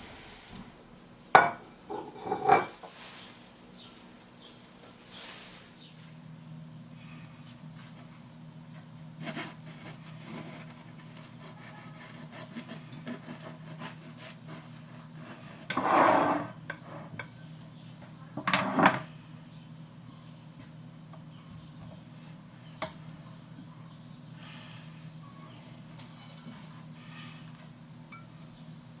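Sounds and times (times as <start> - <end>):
scraping rubbing noises: 9.2 - 17.1.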